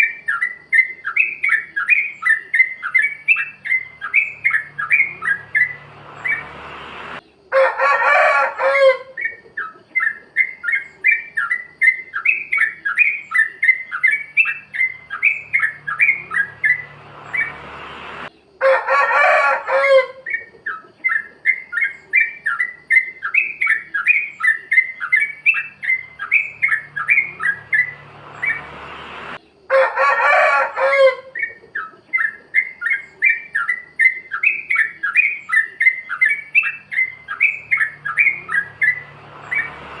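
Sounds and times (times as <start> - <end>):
bird song phrase: 0.0 - 6.6, 9.1 - 18.6, 20.2 - 29.7, 31.3 - 40.0
bulbul chirping notes: 3.3 - 7.1, 14.4 - 18.3.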